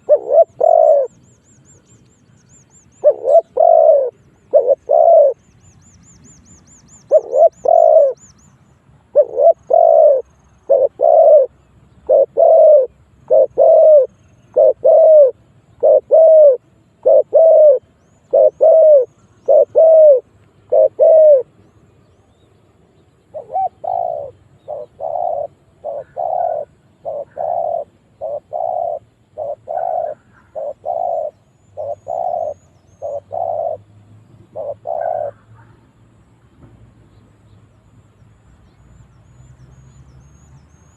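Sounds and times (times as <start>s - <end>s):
dove cooing: 0.0s - 1.3s, 2.8s - 5.5s, 6.9s - 8.3s, 9.1s - 21.6s, 23.3s - 35.9s
small bird twittering: 23.4s - 33.8s.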